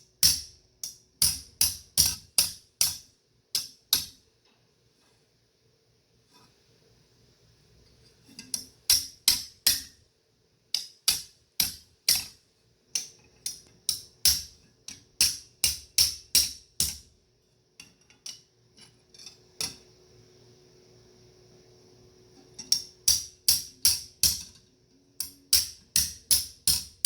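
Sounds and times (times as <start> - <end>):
hammer striking metal on anvil: 0.2 - 3.0, 3.6 - 4.2, 10.8 - 12.3, 15.2 - 17.0, 22.7 - 24.4, 25.2 - 27.0.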